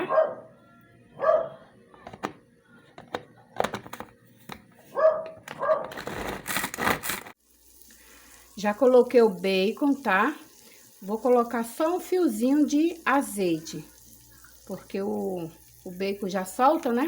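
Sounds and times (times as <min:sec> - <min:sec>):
dog barking: 0:00.0 - 0:00.5, 0:01.2 - 0:01.7, 0:04.9 - 0:05.9
bacon sizzling in a pan: 0:07.4 - 0:17.0.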